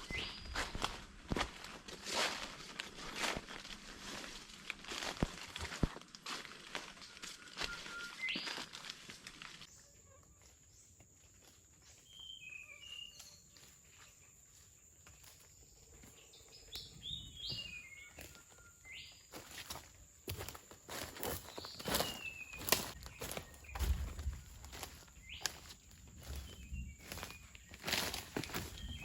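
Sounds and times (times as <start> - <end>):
birds chirping and whistling: 0.0 - 0.8, 6.9 - 8.8, 12.0 - 14.1, 16.0 - 19.8, 21.2 - 29.0
footsteps crunching on forest floor: 0.0 - 29.0.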